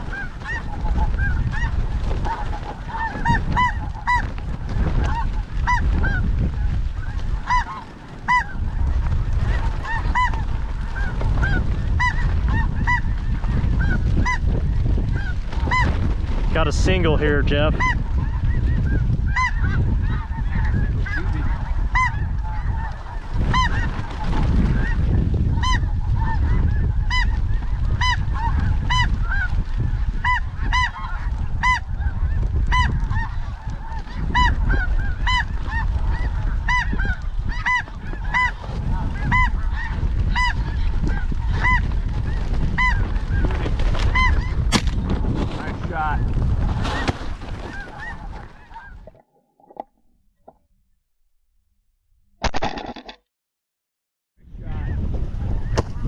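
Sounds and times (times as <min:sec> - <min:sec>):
goose honking calls: 0:00.0 - 0:04.3, 0:05.0 - 0:06.2, 0:07.0 - 0:08.8, 0:09.6 - 0:14.5, 0:17.7 - 0:23.9, 0:28.0 - 0:29.5, 0:30.2 - 0:41.8
wind rumble on microphone: 0:00.0 - 0:49.3, 0:54.4 - 0:56.0.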